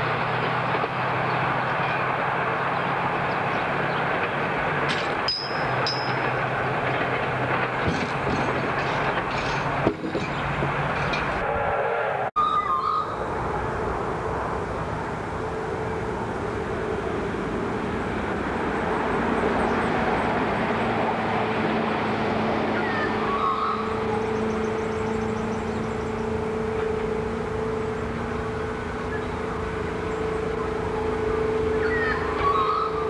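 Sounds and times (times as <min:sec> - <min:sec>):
distant train drone: 0:00.0 - 0:33.0
bird chirps: 0:12.4 - 0:13.2, 0:31.7 - 0:33.0
low hum: 0:12.4 - 0:33.0.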